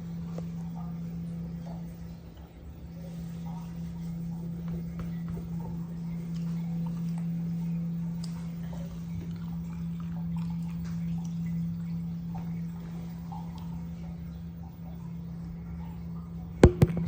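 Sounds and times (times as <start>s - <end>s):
washing machine humming: 0.0s - 17.0s.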